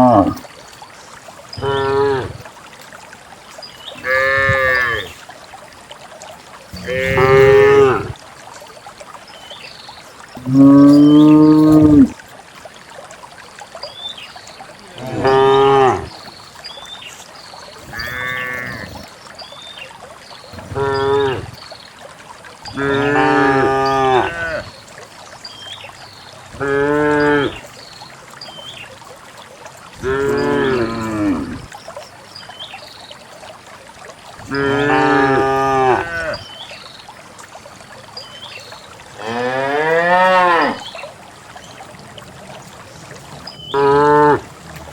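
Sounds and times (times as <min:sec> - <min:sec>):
cows mooing: 0:01.6 - 0:02.4, 0:04.0 - 0:05.1, 0:06.8 - 0:08.2, 0:15.0 - 0:16.1, 0:17.9 - 0:19.0, 0:22.7 - 0:24.6, 0:30.0 - 0:31.6, 0:34.5 - 0:36.4, 0:39.2 - 0:40.8, 0:43.7 - 0:44.4.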